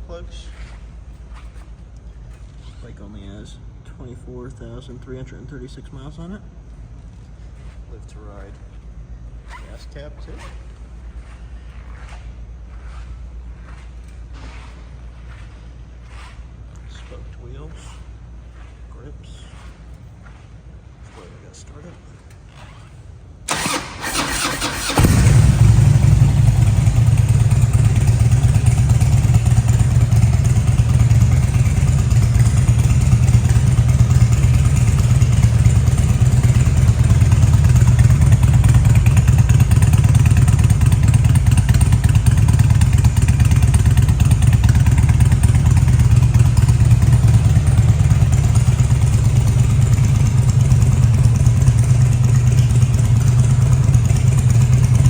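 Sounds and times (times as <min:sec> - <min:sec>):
motorcycle engine starter cranking: 0:23.5 - 0:54.6
motorcycle engine idling: 0:23.5 - 0:55.0.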